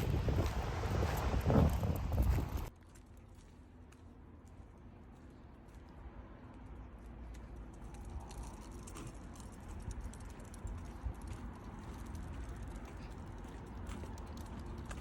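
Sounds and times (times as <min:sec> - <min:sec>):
steady low rumble: 0:04.7 - 0:15.0.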